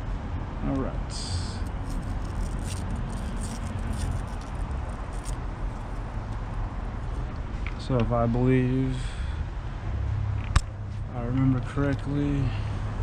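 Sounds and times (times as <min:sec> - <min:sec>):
steady low rumble: 0:00.0 - 0:13.0
test leads clicking and rattling: 0:01.6 - 0:06.6.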